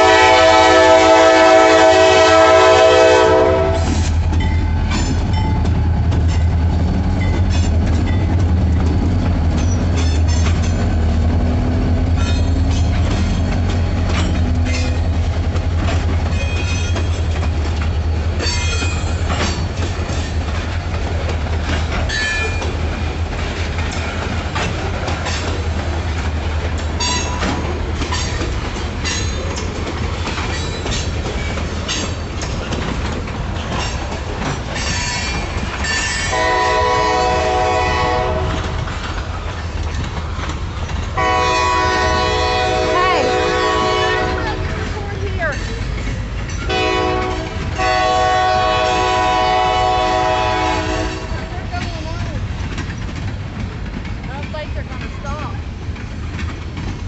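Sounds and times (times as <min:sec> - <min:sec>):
train horn chord: 0:00.0 - 0:04.1, 0:36.1 - 0:38.8, 0:41.2 - 0:45.0, 0:46.7 - 0:51.5
diesel locomotives rumbling: 0:00.0 - 0:57.0
wheels clacking over rail joints: 0:00.0 - 0:57.0.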